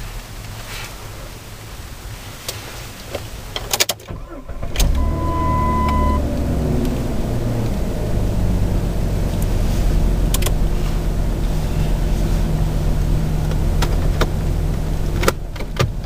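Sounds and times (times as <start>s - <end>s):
car engine starting and idling: 0.0s - 16.0s
electronic chime: 5.0s - 6.3s.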